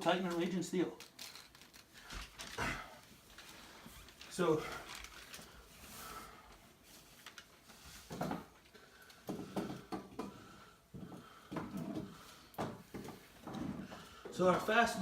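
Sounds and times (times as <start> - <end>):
small objects knocking and rattling: 1.0 - 5.5.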